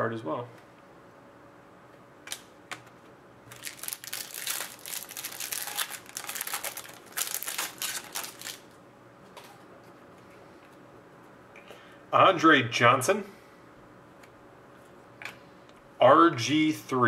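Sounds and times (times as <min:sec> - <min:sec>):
plastic wrapper crinkling: 0:03.5 - 0:08.8.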